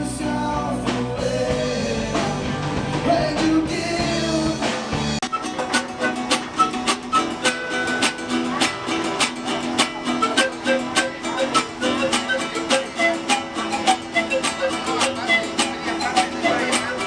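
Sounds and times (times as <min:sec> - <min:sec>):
plucked string instrument music: 0:05.1 - 0:17.0.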